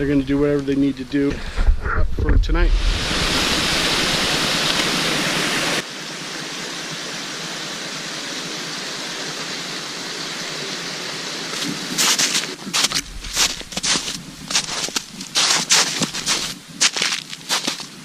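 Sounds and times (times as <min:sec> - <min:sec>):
steady rushing noise: 0:01.3 - 0:06.8, 0:11.5 - 0:16.9.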